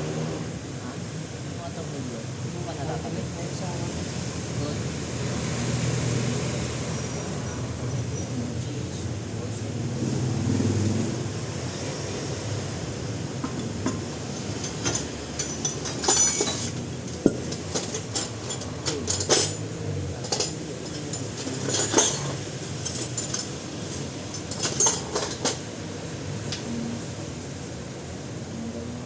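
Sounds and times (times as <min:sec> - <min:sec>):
hand tools clinking on steel: 0:13.4 - 0:26.7.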